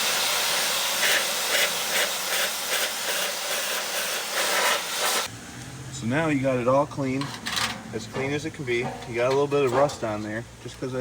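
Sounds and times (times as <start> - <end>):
water spray hissing: 0.0 - 5.3.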